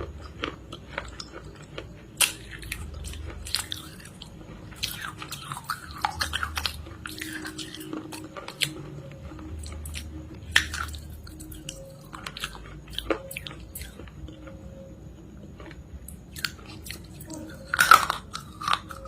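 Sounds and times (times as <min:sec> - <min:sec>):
crunchy chewing and biting: 0:00.0 - 0:19.0.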